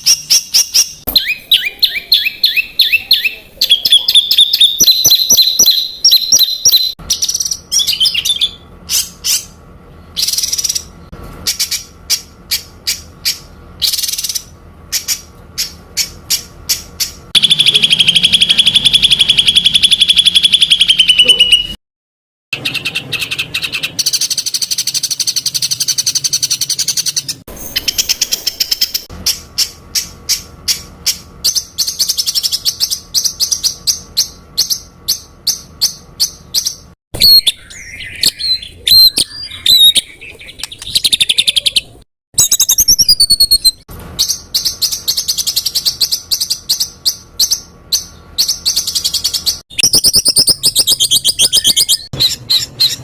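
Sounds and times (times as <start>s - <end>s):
songbird whistled phrases: 0.0s - 9.5s, 17.4s - 21.8s, 31.1s - 53.0s
songbird sharp repeated notes: 0.0s - 9.6s, 10.2s - 21.8s.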